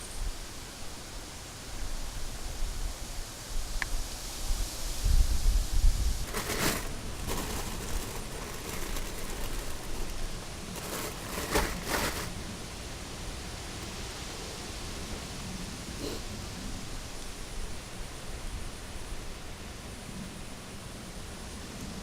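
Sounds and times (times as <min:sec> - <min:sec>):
steady outdoor hiss: 0:00.0 - 0:22.0
short rustles: 0:06.2 - 0:12.4.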